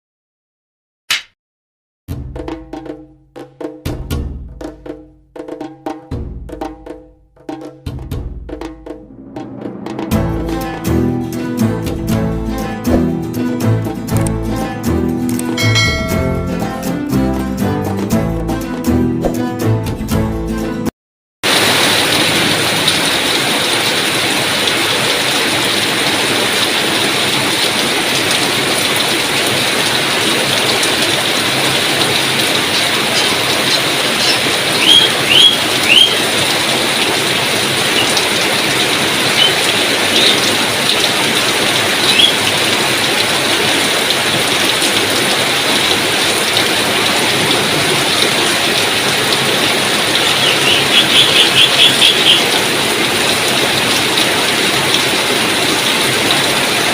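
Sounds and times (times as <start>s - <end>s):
heavy rain falling: 21.4s - 56.9s.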